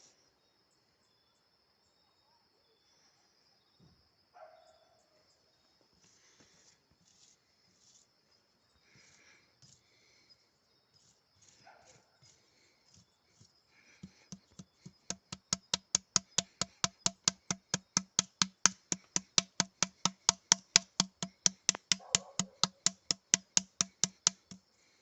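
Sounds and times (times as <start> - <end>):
fast sharp knocks with thuds: 14.0 - 24.6.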